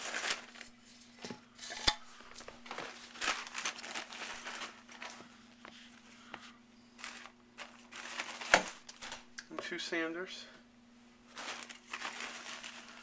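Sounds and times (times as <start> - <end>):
faint steady hum: 0.0 - 13.0
brushes being handled: 11.3 - 13.0.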